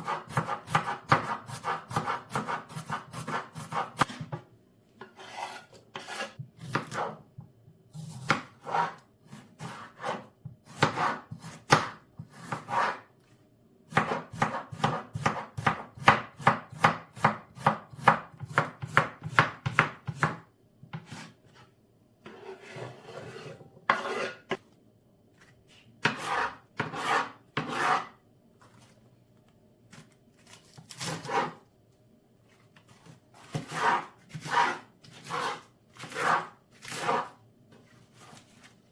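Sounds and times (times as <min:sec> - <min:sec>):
knife chopping on cutting board: 0:00.0 - 0:04.4, 0:05.1 - 0:07.2, 0:08.0 - 0:13.0, 0:13.9 - 0:21.3, 0:22.3 - 0:24.6, 0:26.0 - 0:28.1, 0:30.8 - 0:31.6, 0:33.4 - 0:37.4.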